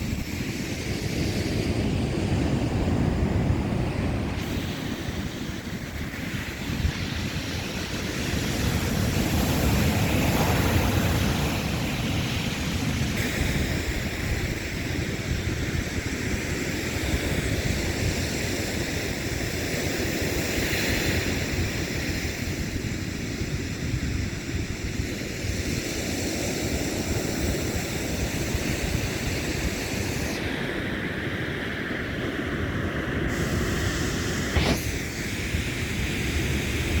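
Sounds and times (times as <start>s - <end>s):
ocean surf washing: 0.0s - 37.0s
wind buffeting microphone: 0.0s - 37.0s
brief sharp sound: 34.5s - 35.2s.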